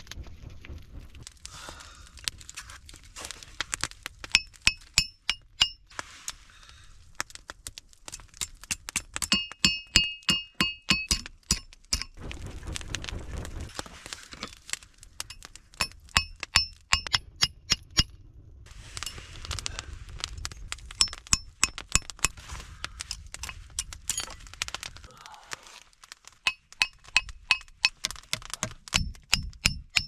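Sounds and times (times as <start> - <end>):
hammer striking steel rod: 4.3 - 5.8, 8.1 - 12.2, 15.3 - 18.1, 21.0 - 22.4, 26.5 - 30.0.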